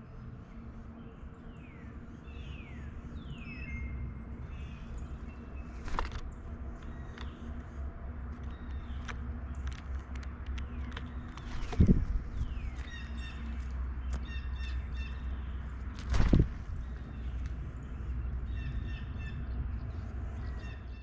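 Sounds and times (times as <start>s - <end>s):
steady low rumble: 0.0s - 21.0s
sharp taps and clicks: 8.4s - 12.1s.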